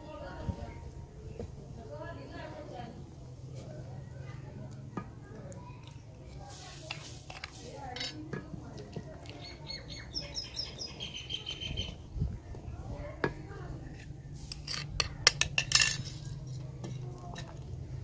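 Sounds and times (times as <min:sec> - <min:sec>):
utensils knocking against metal pot: 0:14.5 - 0:16.2.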